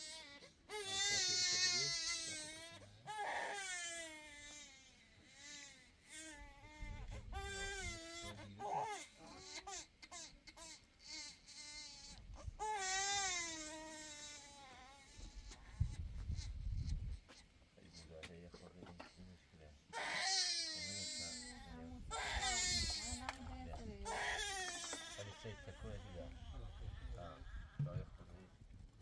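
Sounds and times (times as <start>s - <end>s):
infant crying: 0.0s - 15.8s, 19.9s - 27.2s.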